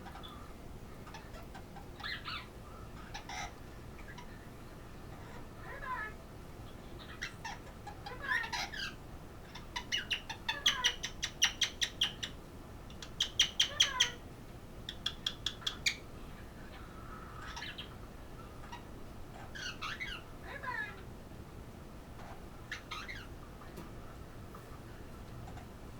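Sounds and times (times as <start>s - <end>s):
parrot calling: 0.0s - 4.4s, 7.0s - 12.4s, 13.0s - 14.2s, 14.9s - 21.1s, 22.2s - 23.4s.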